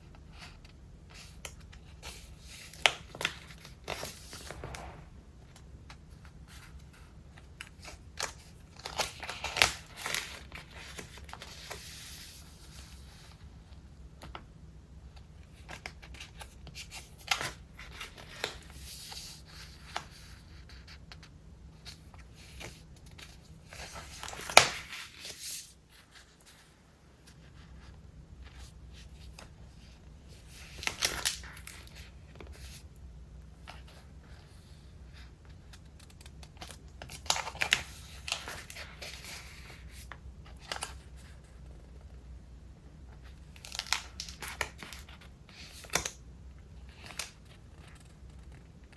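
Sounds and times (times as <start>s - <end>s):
paper pages rustling: 2.0s - 5.2s, 36.0s - 41.3s
page snapping: 2.8s - 5.1s, 43.6s - 45.0s, 45.8s - 46.2s.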